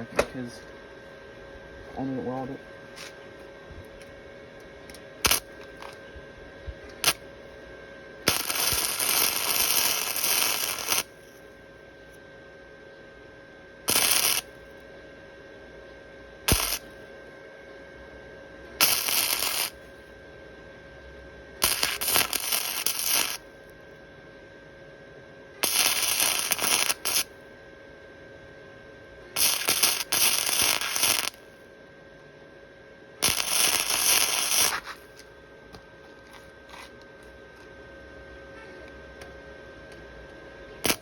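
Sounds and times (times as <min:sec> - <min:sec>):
steady hum with faint tone: 0:00.0 - 0:41.0
welding arc crackling: 0:05.2 - 0:06.0, 0:06.9 - 0:07.2, 0:08.2 - 0:11.2, 0:13.9 - 0:14.6, 0:16.5 - 0:16.9, 0:18.8 - 0:19.9, 0:21.6 - 0:23.5, 0:25.6 - 0:27.4, 0:29.4 - 0:31.5, 0:33.2 - 0:35.3.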